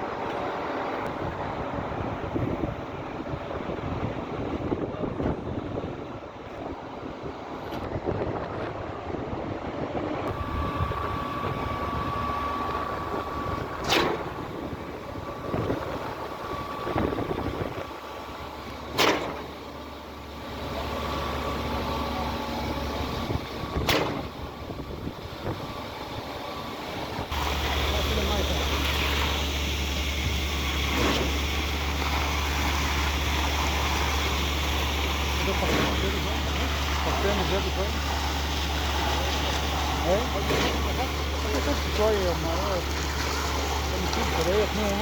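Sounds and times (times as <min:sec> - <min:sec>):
concrete pump running: 0:10.2 - 0:45.0
pump clunking: 0:10.3 - 0:45.0.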